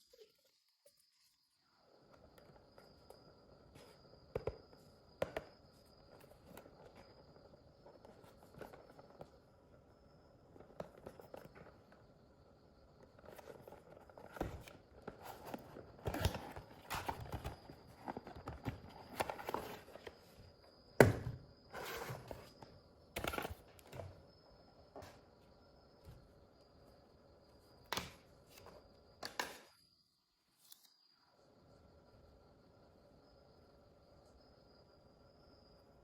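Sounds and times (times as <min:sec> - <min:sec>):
plastic fan and packaging handled: 0:03.7 - 0:09.8, 0:13.0 - 0:24.2.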